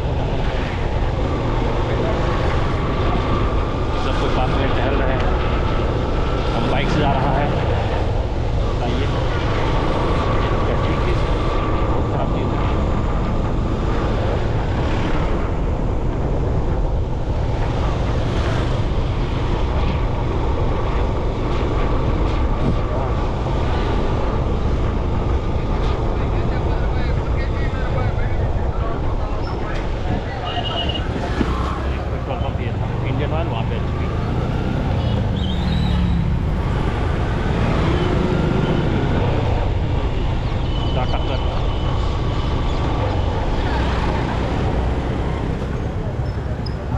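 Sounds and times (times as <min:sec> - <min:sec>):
motorcycle engine rumble: 0:00.0 - 0:46.9
traffic: 0:00.0 - 0:46.9
wind rushing over microphone: 0:00.0 - 0:46.9
motorbike engine: 0:29.8 - 0:46.9.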